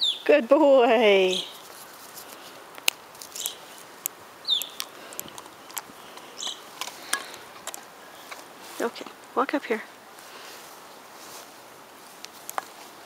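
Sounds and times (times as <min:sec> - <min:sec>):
small birds chirping: 0:00.0 - 0:09.8
sharp clicks: 0:02.7 - 0:07.9.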